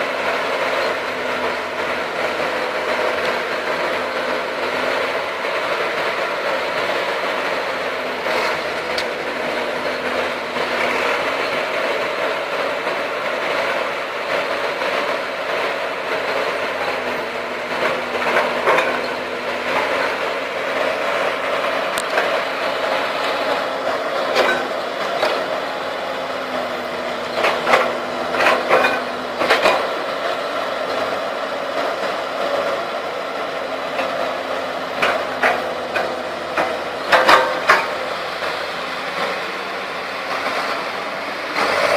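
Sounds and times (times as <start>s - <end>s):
heavy diesel engines running: 0.0s - 41.9s
metal clanks and knocks: 17.7s - 20.0s, 24.3s - 25.5s, 27.3s - 29.9s, 35.0s - 38.1s.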